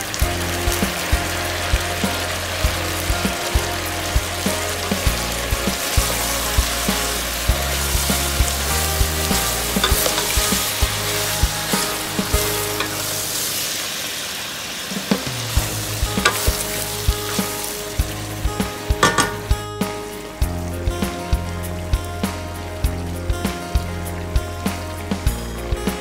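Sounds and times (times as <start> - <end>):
meat and onions sizzling: 0.0 - 26.0
wooden spoon knocking pot: 19.0 - 19.6.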